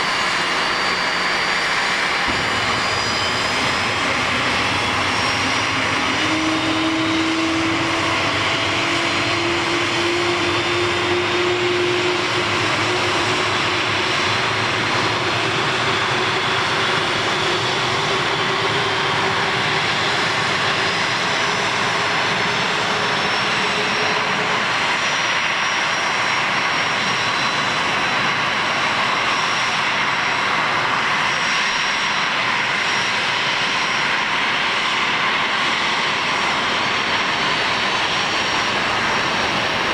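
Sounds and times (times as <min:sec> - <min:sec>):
high jet whine: 0:00.0 - 0:39.9
jet engines running: 0:00.0 - 0:39.9.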